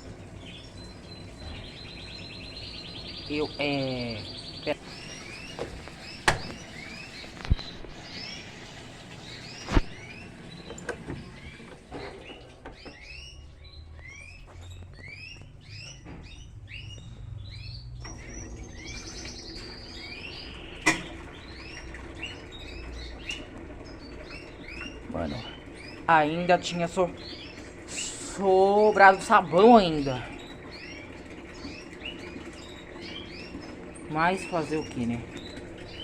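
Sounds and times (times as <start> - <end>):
small birds chirping: 0.0 - 36.0
washing machine filling with water: 0.0 - 36.0
sharp knocks: 5.6 - 6.6.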